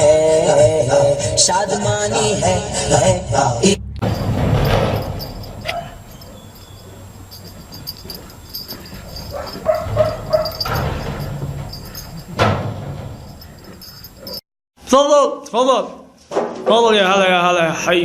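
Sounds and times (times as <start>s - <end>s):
animal yipping: 5.3s - 12.5s.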